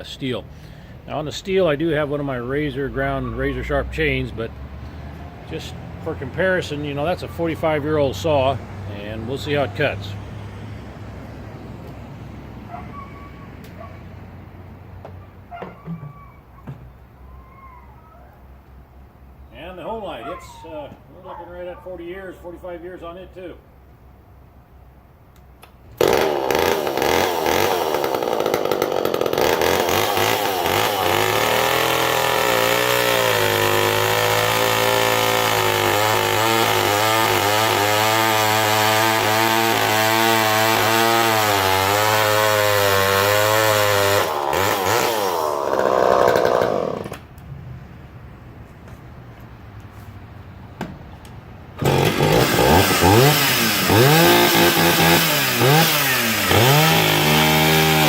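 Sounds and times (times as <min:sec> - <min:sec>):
chainsaw cutting wood: 0:26.0 - 0:47.3, 0:51.8 - 0:58.0.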